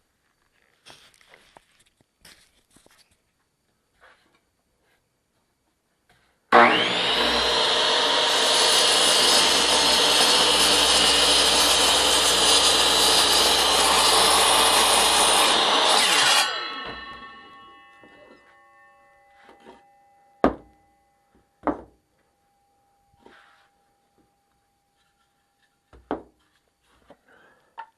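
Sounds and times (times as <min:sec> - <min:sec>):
bandsaw motor coasting down: 0:06.5 - 0:17.6
bandsaw sawing wood: 0:06.5 - 0:18.5.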